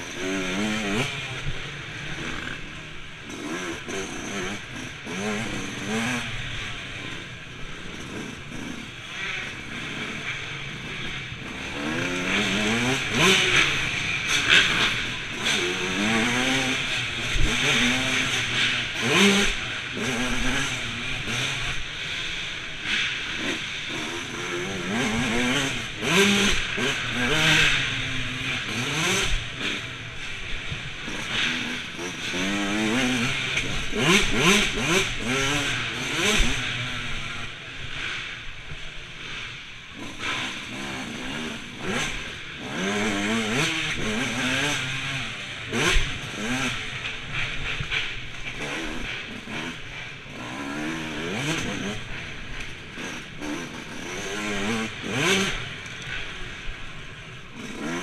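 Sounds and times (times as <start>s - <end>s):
motocross bike engines revving: 0.0s - 58.0s.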